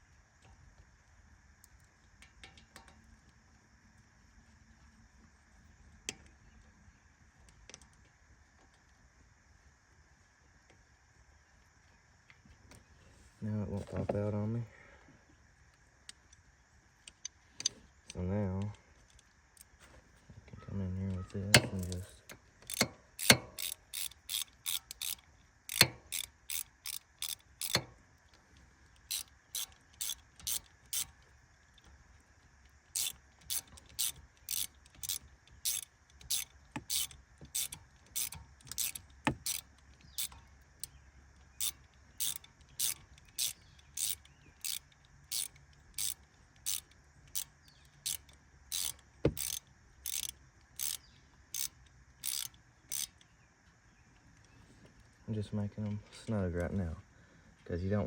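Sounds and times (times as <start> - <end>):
ratchet wrench clicking: 21.5 - 27.9, 29.0 - 31.9, 32.9 - 53.3.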